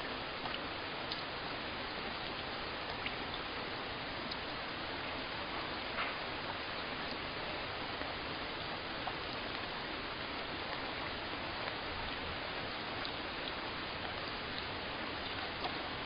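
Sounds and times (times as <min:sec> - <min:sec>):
steady rainfall: 0:00.0 - 0:16.0
faint drops ticking: 0:00.1 - 0:16.0.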